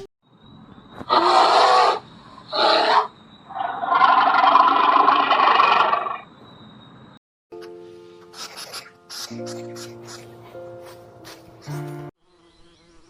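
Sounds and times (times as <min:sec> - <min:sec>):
animal calling harshly: 0:01.1 - 0:06.2, 0:08.3 - 0:10.5.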